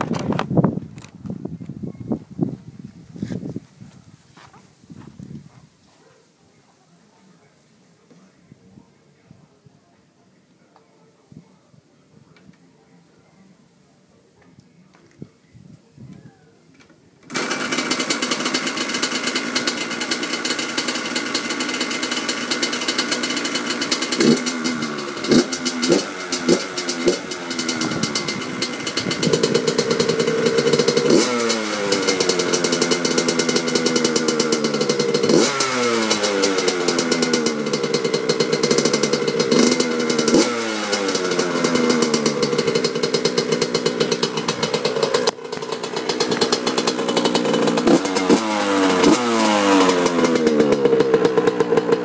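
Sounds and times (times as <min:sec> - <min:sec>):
two-stroke engine idling and revving: 0:17.3 - 0:52.0.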